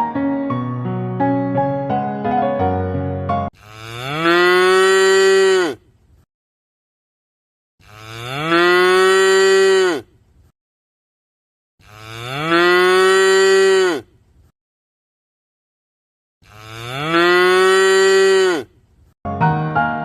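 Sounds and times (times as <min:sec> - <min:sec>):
cattle mooing: 0:03.6 - 0:05.8, 0:07.8 - 0:10.1, 0:11.8 - 0:14.1, 0:16.4 - 0:18.7.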